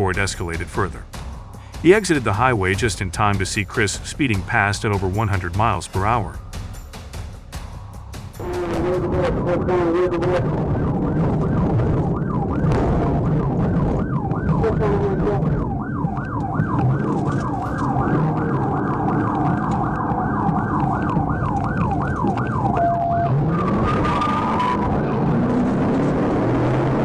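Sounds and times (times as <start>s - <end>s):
police siren yelping: 8.4s - 27.0s
car driving fast: 8.6s - 27.0s.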